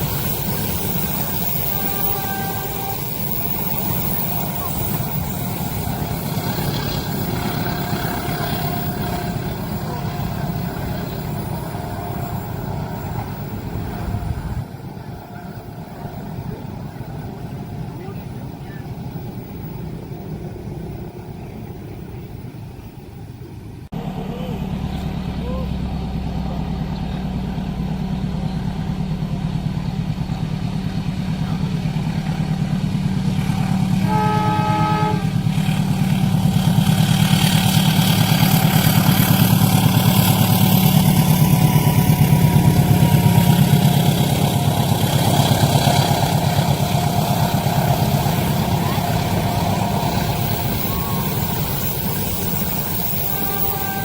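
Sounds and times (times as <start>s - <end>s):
train horn blast: 0.0s - 16.6s, 33.3s - 54.0s
train passing: 0.0s - 54.0s.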